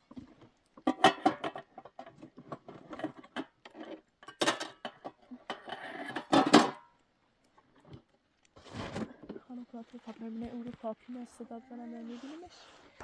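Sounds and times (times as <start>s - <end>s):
scraping or rustling bursts: 8.6s - 11.1s.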